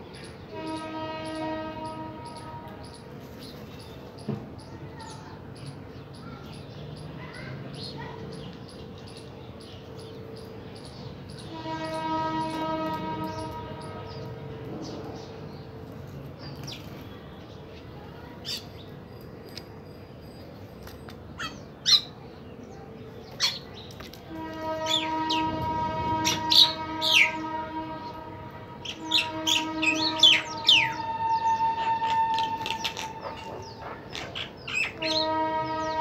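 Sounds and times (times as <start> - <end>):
birds chirping and calling: 0.1 - 36.0
long steady horn: 0.4 - 3.0, 11.4 - 16.1, 24.2 - 33.9, 34.7 - 36.0.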